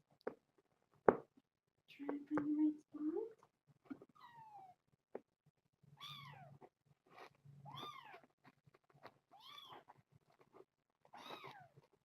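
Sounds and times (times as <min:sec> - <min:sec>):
kitten meowing: 0:06.0 - 0:06.6, 0:09.4 - 0:09.9, 0:11.2 - 0:11.7.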